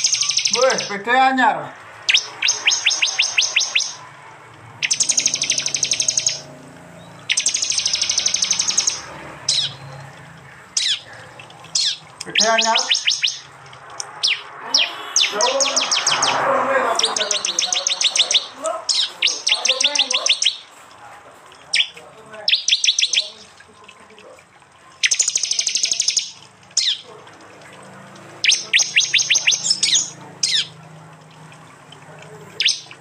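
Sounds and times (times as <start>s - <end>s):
bird calling in rattling bursts: 0.0s - 20.8s, 21.5s - 23.6s, 24.8s - 27.6s, 28.2s - 31.5s, 32.6s - 33.0s.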